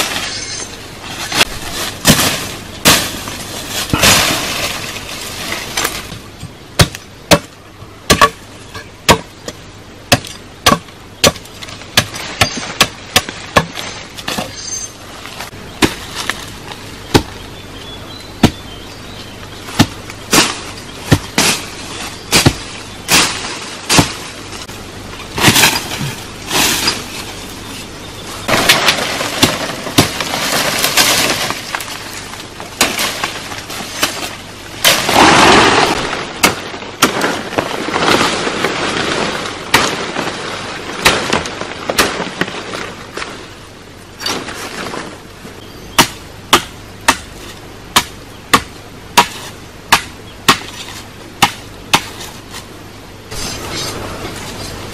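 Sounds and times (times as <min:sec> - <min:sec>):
blade chopping wood: 0:08.1 - 0:08.4, 0:22.3 - 0:24.2, 0:48.0 - 0:52.4.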